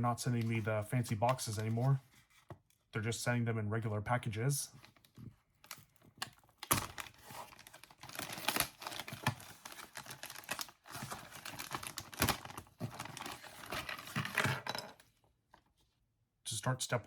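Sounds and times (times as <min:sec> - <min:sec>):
packaging rustling and crackling: 0:04.8 - 0:14.7.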